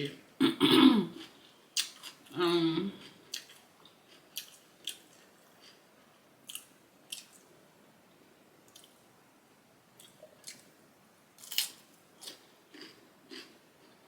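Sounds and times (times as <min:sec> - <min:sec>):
chewing food: 0:03.0 - 0:05.8, 0:11.4 - 0:14.0.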